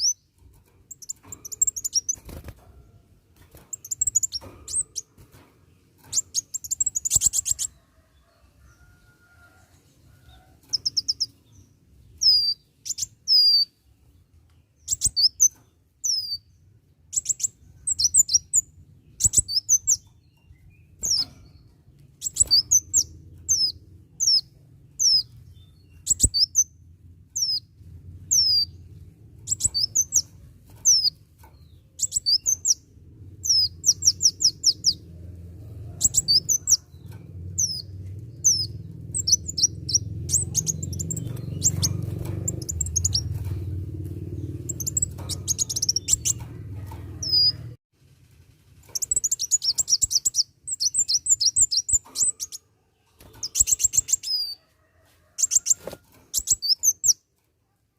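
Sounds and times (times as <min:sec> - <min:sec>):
bird chirping high-pitched: 0:00.0 - 0:00.3, 0:00.9 - 0:02.5, 0:03.7 - 0:05.1, 0:06.1 - 0:07.8, 0:10.6 - 0:13.8, 0:14.8 - 0:21.4, 0:22.2 - 0:31.2, 0:32.0 - 0:35.1, 0:36.0 - 0:47.8, 0:49.0 - 0:52.6, 0:53.2 - 0:54.6, 0:55.4 - 0:57.2.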